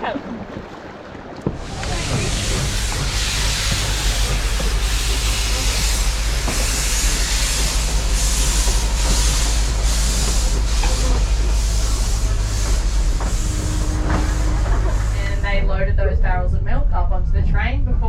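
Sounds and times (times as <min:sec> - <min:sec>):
steam train rumble: 0:01.5 - 0:18.0
pulsing steam hiss: 0:01.6 - 0:15.6.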